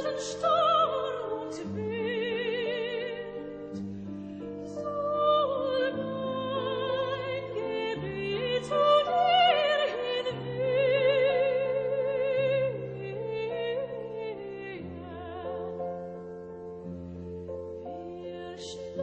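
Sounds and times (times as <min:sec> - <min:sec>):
operatic singing with vibrato: 0:00.0 - 0:16.1.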